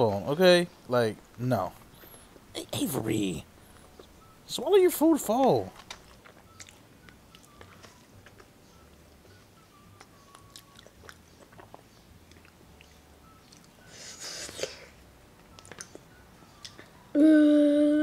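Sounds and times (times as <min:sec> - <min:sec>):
quiet chewing: 0:05.7 - 0:17.0.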